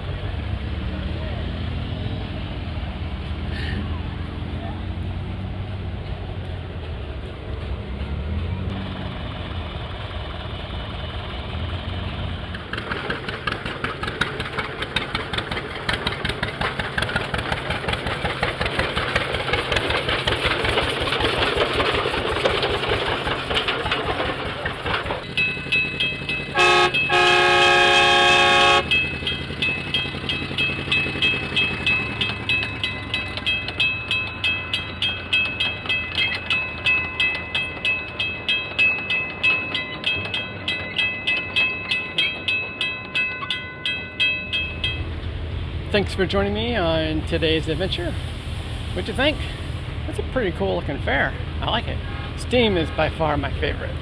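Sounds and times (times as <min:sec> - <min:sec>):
steam engine chuffing: 0:12.5 - 0:43.2, 0:45.8 - 0:54.0
steam whistle: 0:26.6 - 0:29.0.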